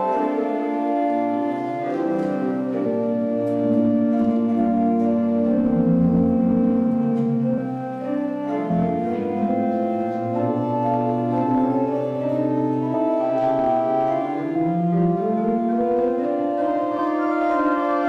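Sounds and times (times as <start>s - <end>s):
church organ playing a hymn: 0.0s - 18.0s.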